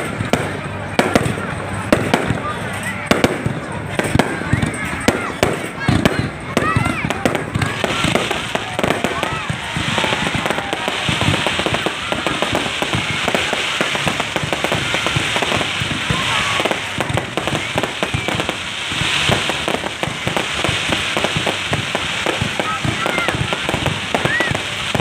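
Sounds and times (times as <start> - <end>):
crowd voices: 0.0 - 25.0
fireworks bursting and crackling: 0.0 - 25.0.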